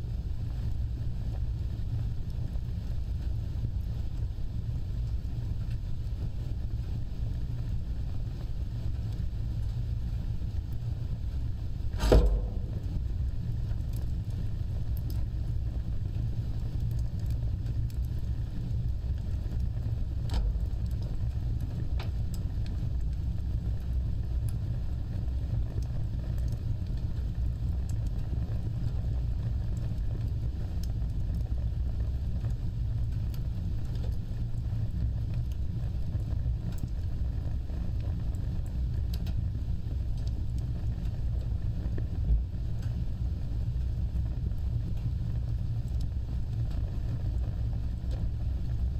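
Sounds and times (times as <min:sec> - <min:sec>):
wood fire crackling: 0:00.0 - 0:48.9
fire popping: 0:08.3 - 0:32.6.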